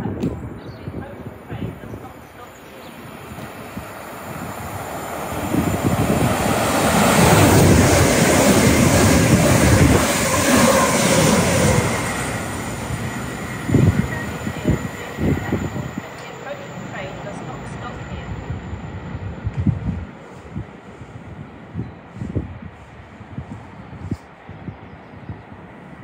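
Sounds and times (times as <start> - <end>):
train passing at speed: 0.0 - 26.0.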